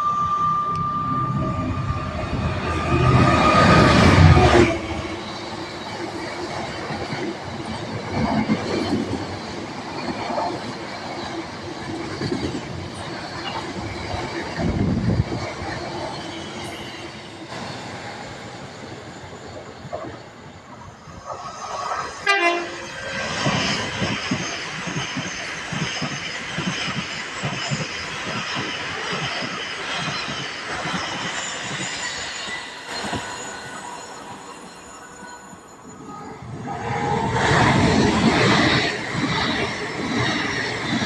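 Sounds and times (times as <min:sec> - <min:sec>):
train horn: 0:00.0 - 0:05.3, 0:22.2 - 0:23.3
falling whine: 0:00.0 - 0:06.0
train wheels rumbling and clicking: 0:00.0 - 0:17.9, 0:23.2 - 0:34.3.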